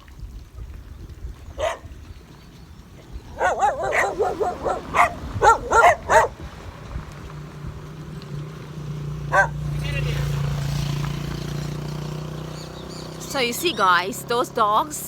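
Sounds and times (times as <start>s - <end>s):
dogs barking: 1.5s - 2.0s, 3.3s - 6.5s, 9.2s - 9.9s.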